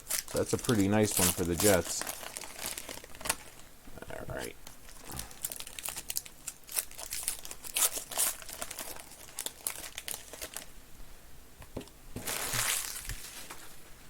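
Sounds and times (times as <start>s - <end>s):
plastic wrapping tearing: 0.0s - 3.6s, 4.6s - 10.7s, 12.2s - 13.7s
plastic wrapping crinkling: 0.0s - 10.7s, 12.2s - 13.9s.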